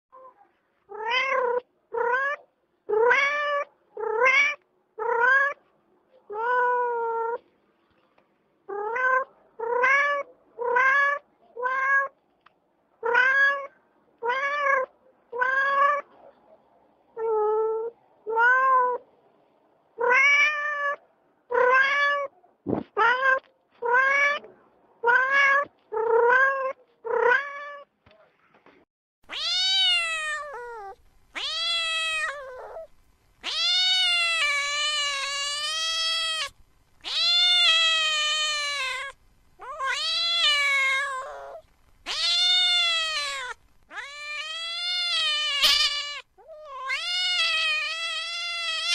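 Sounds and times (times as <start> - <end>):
cat meowing: 0.2 - 5.6, 8.7 - 12.2, 13.0 - 16.1, 20.0 - 22.4, 23.0 - 27.9, 29.3 - 48.9.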